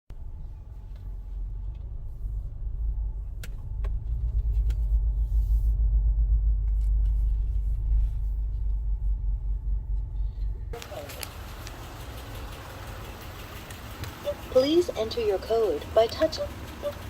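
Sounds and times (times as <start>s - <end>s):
car engine idling: 0.1s - 17.0s
faint clicks: 10.8s - 14.6s.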